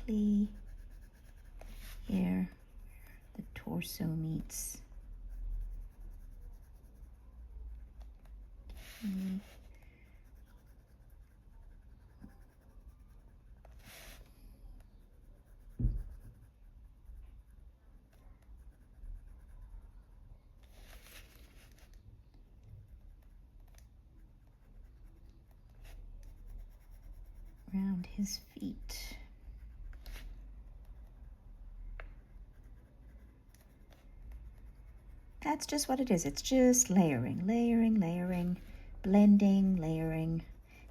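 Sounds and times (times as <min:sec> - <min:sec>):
pencil scratching on paper: 0:00.0 - 0:40.9
soft low thump: 0:15.6 - 0:16.4.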